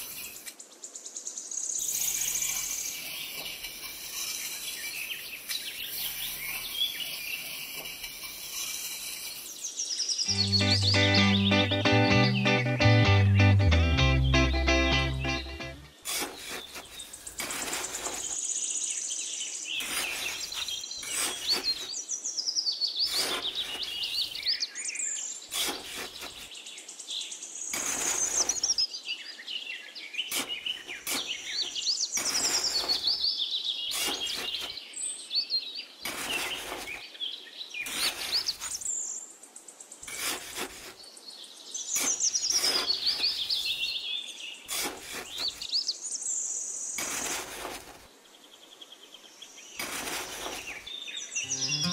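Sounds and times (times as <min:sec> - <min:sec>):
small birds chirping and singing: 0:00.0 - 0:47.0, 0:48.2 - 0:51.9
trowel scraping into sand: 0:01.8 - 0:09.8, 0:16.0 - 0:18.4, 0:19.8 - 0:22.0, 0:23.1 - 0:24.5, 0:25.5 - 0:26.6, 0:27.7 - 0:28.8, 0:30.3 - 0:33.2, 0:33.9 - 0:34.8, 0:36.0 - 0:37.1, 0:37.8 - 0:38.9, 0:40.0 - 0:41.0, 0:41.9 - 0:43.9, 0:44.7 - 0:45.8, 0:47.0 - 0:48.1, 0:49.8 - 0:50.9.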